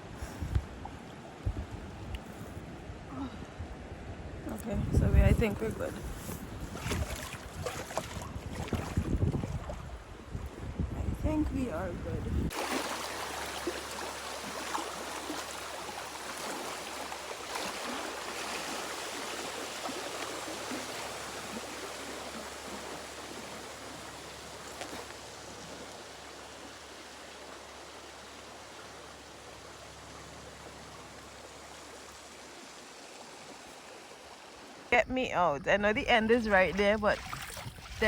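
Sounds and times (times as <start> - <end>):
river water rushing: 12.5 - 34.9.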